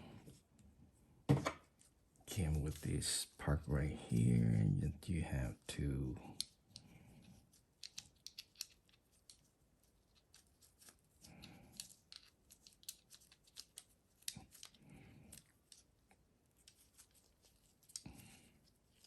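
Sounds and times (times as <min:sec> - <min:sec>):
small metal parts clicking: 0:07.8 - 0:09.4, 0:11.7 - 0:15.8.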